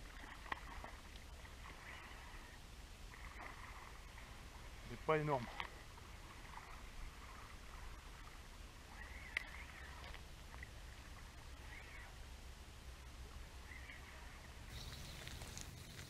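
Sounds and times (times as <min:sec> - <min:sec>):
low steady rumble: 0:00.0 - 0:16.0
bird chirps: 0:13.6 - 0:16.0.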